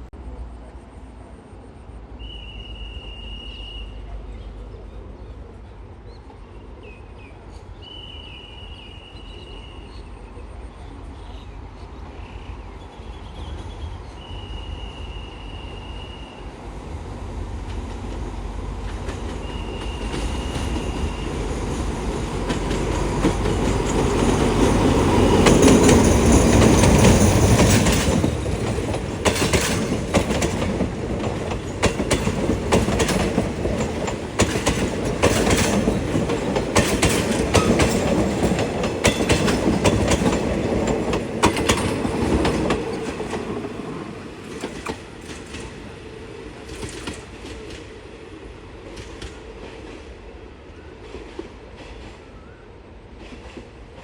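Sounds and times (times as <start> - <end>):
train rumble: 0.0 - 54.0
wheels clattering over rail joints: 18.8 - 47.9.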